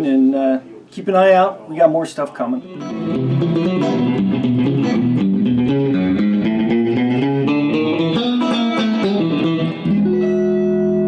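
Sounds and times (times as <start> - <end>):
electric guitar playing: 2.5 - 11.0.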